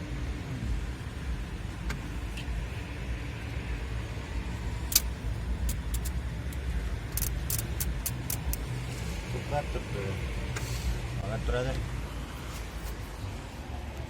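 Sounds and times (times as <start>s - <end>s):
motor vehicle rumble: 0.0s - 14.0s
sharp clicks: 4.9s - 8.6s.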